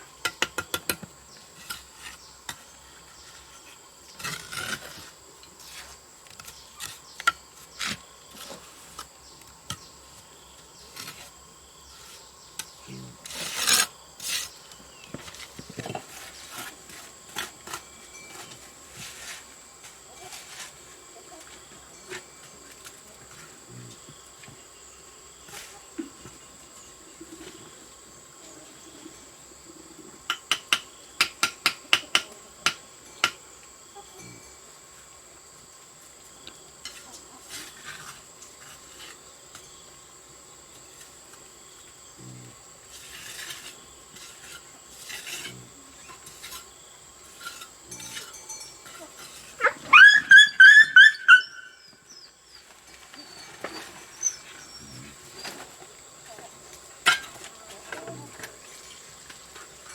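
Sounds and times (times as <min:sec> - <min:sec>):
pitched animal call: 0:49.6 - 0:51.8.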